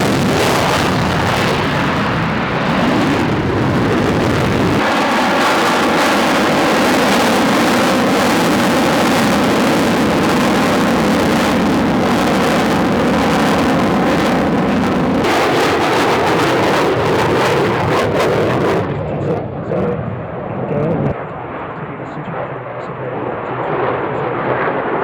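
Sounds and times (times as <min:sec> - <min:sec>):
jet engine roar: 0:00.0 - 0:25.0.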